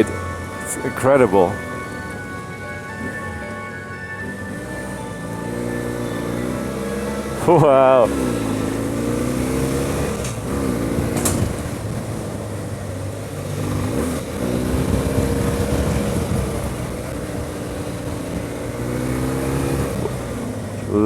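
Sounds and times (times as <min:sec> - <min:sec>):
motorcycle engine running: 0:04.3 - 0:21.0.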